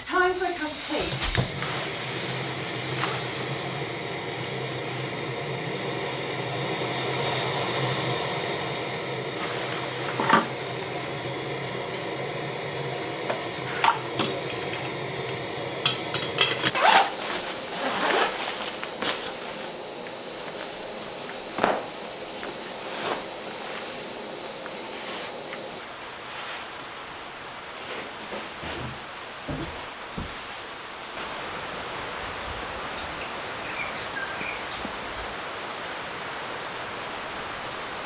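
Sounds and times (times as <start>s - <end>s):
steady hiss: 0.0s - 38.0s
metal cookware clinking: 13.7s - 17.0s.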